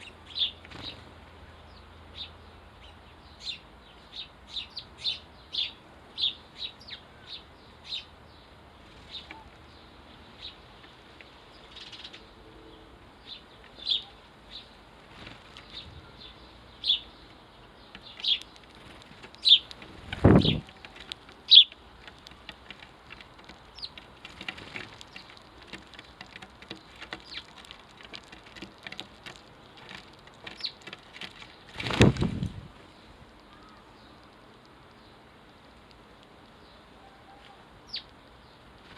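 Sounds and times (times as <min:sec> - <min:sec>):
sparrows chirping: 0:00.0 - 0:38.9
light ticking and tapping: 0:17.6 - 0:31.7.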